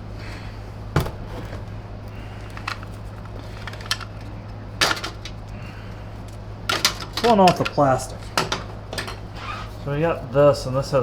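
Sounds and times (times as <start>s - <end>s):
steady low hum: 0.0s - 11.0s
plastic vacuum parts clicking: 2.4s - 5.6s, 6.7s - 9.3s.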